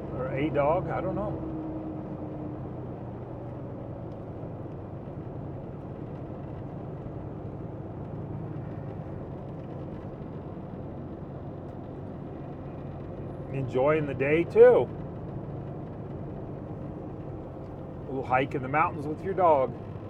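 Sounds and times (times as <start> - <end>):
road noise: 0.0 - 20.0
truck diesel engine drone: 11.8 - 20.0.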